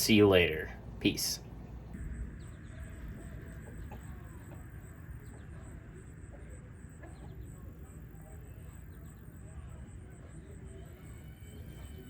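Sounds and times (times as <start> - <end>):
faint high chirps: 1.9 - 12.0.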